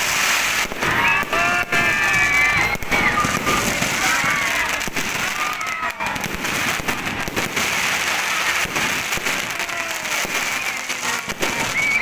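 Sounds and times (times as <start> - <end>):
distant voices: 0.1 - 12.0.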